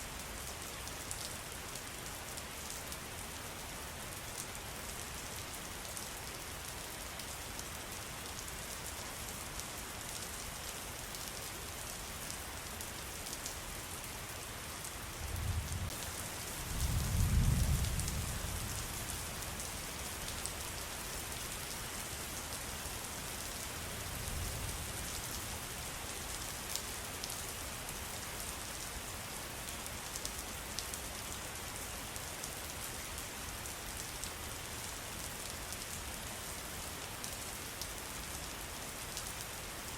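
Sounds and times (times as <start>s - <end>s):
rain pattering: 14.8s - 39.9s.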